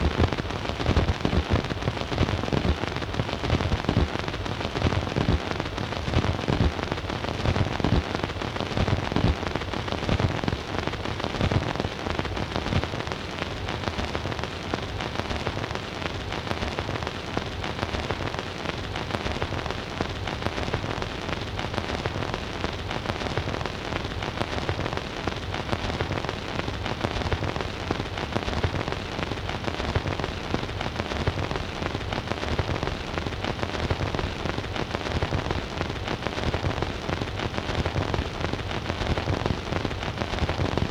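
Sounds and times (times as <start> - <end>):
record surface noise crackling: 0.0 - 40.9.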